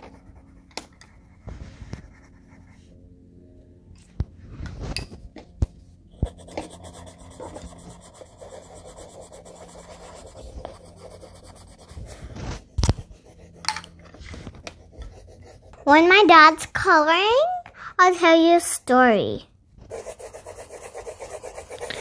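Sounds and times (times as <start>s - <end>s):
colouring strokes on paper: 0.0s - 2.8s, 6.2s - 16.0s, 19.9s - 22.0s.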